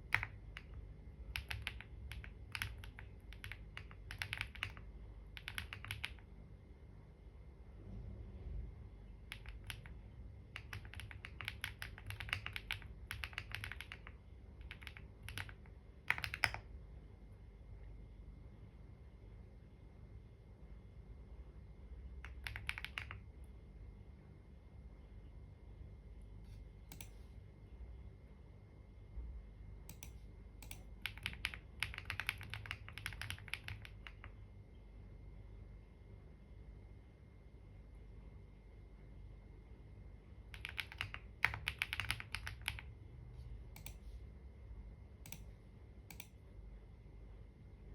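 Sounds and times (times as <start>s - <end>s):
computer keyboard typing: 0.0s - 6.3s, 9.2s - 16.7s, 22.2s - 23.4s, 26.9s - 27.2s, 29.9s - 34.4s, 40.5s - 43.0s, 43.7s - 44.0s, 45.2s - 45.5s, 46.1s - 46.4s.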